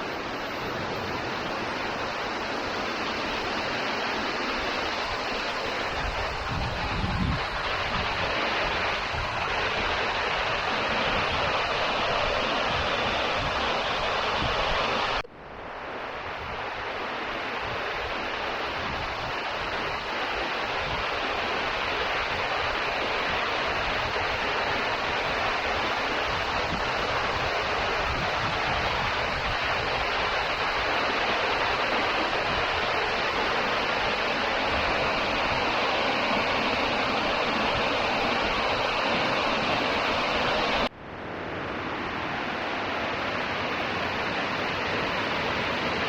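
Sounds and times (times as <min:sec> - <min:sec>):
waterfall roaring: 0:00.0 - 0:46.0.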